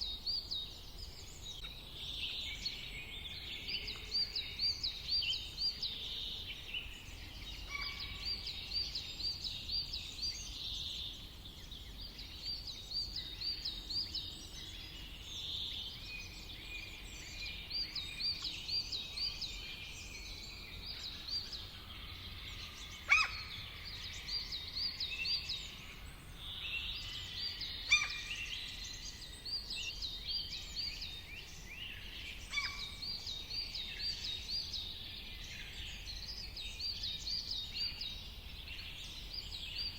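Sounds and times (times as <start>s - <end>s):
songbirds chirping: 0.0s - 39.9s
sharp bird calls: 22.6s - 24.3s, 27.0s - 28.8s, 31.9s - 34.2s.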